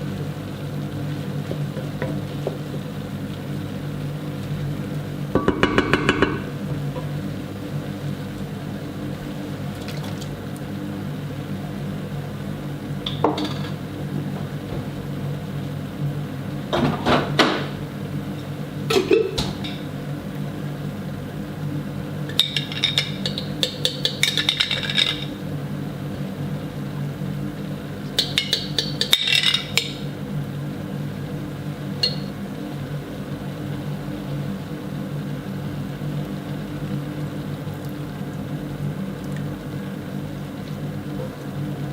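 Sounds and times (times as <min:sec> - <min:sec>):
steady low hum: 0:02.1 - 0:13.1
dishes and utensils clinking: 0:05.4 - 0:06.5, 0:22.3 - 0:25.3, 0:28.2 - 0:30.0, 0:32.0 - 0:32.3.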